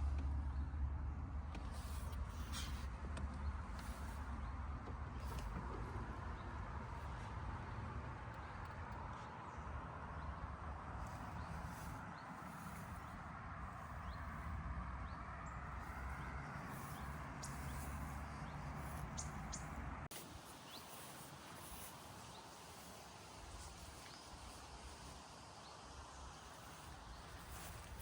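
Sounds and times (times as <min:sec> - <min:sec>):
bird chirps: 0:15.0 - 0:22.9.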